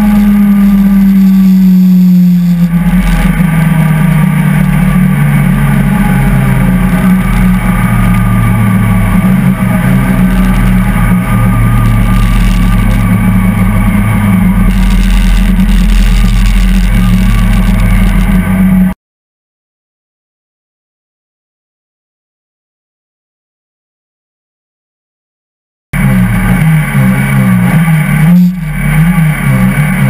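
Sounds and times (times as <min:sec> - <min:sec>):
car engine accelerating hard: 0:00.0 - 0:19.0, 0:26.0 - 0:30.0.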